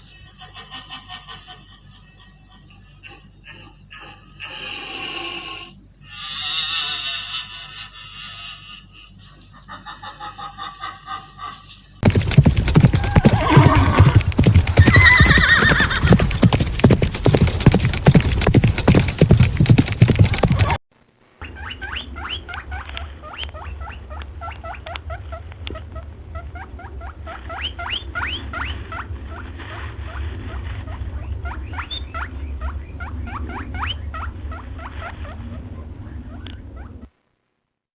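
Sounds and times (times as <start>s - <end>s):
low hum: 11.9s - 37.5s
rapid animal clicks: 12.0s - 15.2s, 15.8s - 20.8s.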